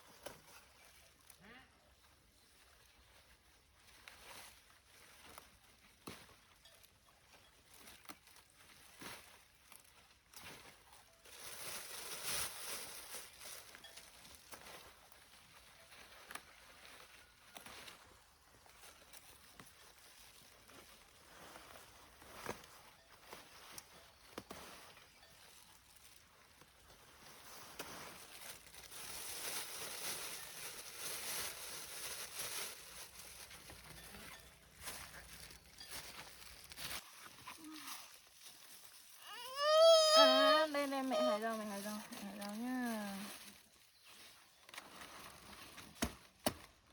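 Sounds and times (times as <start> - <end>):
leafy plants rustling: 0.0 - 46.9.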